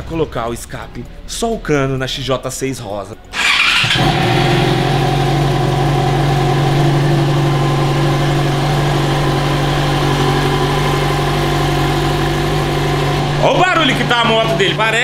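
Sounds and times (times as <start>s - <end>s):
motorcycle engine idling: 3.3s - 15.0s.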